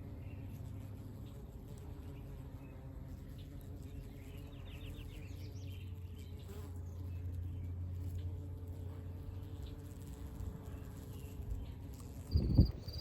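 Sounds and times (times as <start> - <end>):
honeybees buzzing: 0.0 - 13.0
bird chirping: 12.3 - 13.0.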